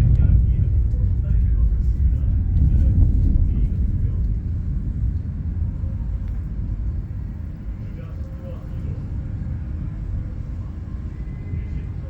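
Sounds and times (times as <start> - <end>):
thunder rumbling: 0.0 - 7.8.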